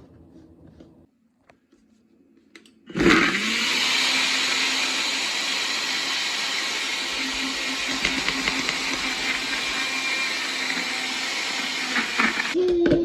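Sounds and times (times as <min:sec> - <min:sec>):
blender motor running: 0:02.9 - 0:12.6.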